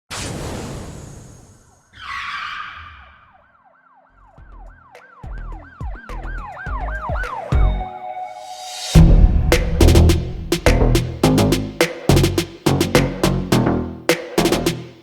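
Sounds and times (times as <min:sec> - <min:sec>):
siren-like wail: 0:01.9 - 0:09.0
music: 0:04.4 - 0:15.0
swoosh: 0:08.4 - 0:11.8
deep bass hits: 0:09.0 - 0:13.8.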